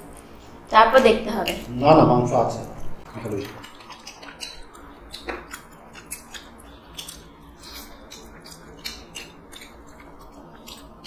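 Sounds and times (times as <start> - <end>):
chewing food: 3.1 - 11.0
mouth clicks and wet smacks: 3.4 - 11.0.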